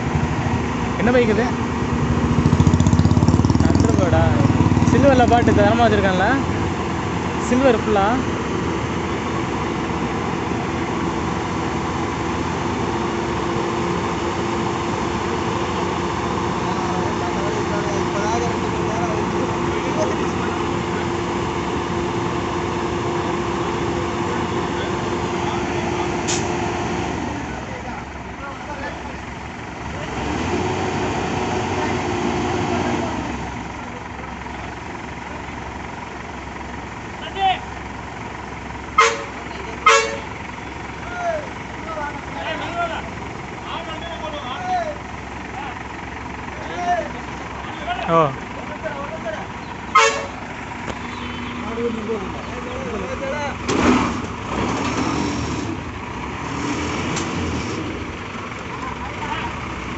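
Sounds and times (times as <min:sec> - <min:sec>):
outdoor noise: 0:00.0 - 0:59.9
traffic noise: 0:00.0 - 0:59.9
vehicle engine running: 0:00.0 - 0:59.9.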